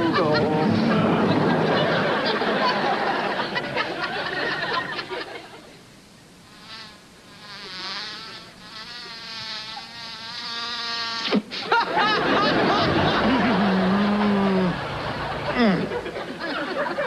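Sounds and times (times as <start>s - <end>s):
mosquito buzzing: 6.4s - 11.4s
sharp slap: 11.2s - 11.7s.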